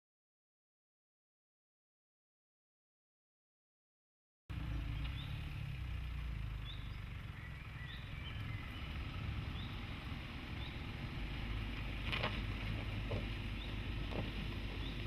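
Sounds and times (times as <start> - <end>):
birds chirping: 4.5 - 15.0
diesel engine running low: 4.5 - 15.0.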